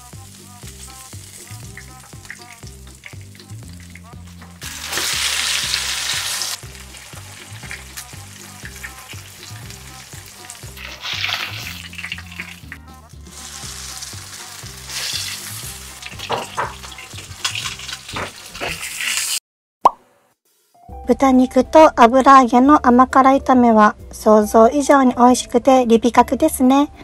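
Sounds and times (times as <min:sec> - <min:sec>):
light background music: 0:00.0 - 0:18.4, 0:20.7 - 0:27.0
fish frying in oil: 0:00.0 - 0:19.4.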